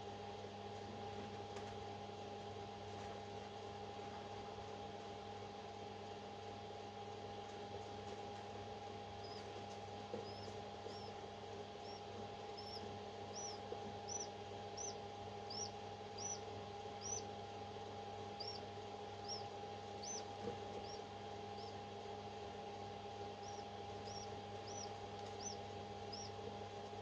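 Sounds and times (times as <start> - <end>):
steady machine hum: 8.4 - 27.0
parrot chick cheeping: 9.2 - 9.5, 10.1 - 17.4, 18.2 - 21.8, 23.2 - 26.4.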